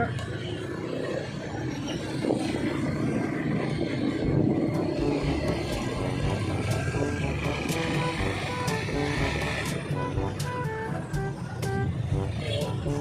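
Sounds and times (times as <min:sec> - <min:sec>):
motorcycle engine and road noise: 0:00.0 - 0:13.0
wind buffeting microphone: 0:00.7 - 0:10.4.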